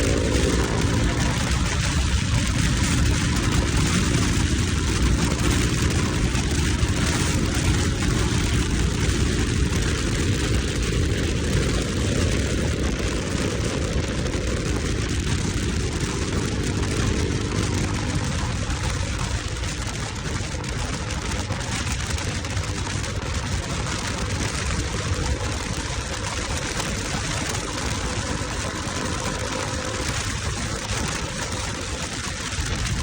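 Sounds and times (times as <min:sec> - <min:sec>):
motorcycle engine running: 0:00.0 - 0:33.0
wind noise on microphone: 0:00.0 - 0:33.0.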